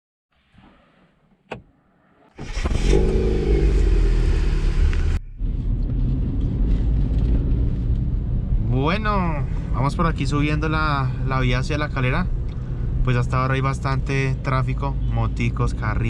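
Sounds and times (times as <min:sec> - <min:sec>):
car engine revving: 0:02.4 - 0:09.7
car engine running steadily: 0:02.4 - 0:15.9.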